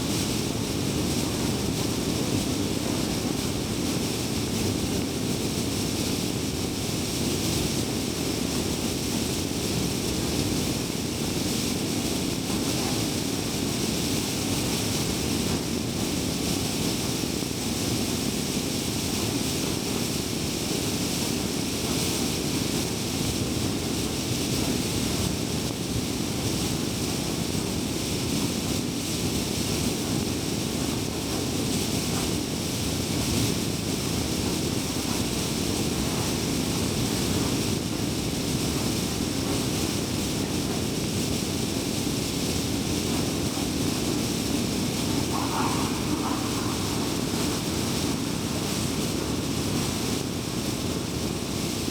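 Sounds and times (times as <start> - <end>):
wind rush: 42.6 - 51.9
car road and tyre noise: 42.8 - 51.9.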